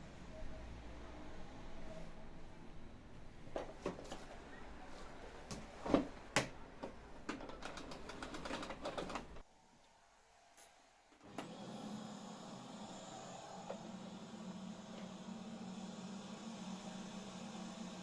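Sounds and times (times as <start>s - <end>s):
household things clicking and knocking: 5.5s - 9.4s.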